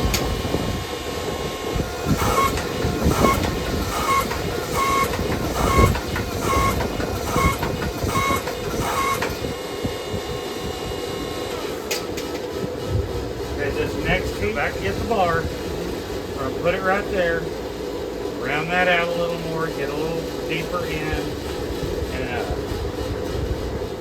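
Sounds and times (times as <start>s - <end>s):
steady rushing noise: 9.3s - 24.0s.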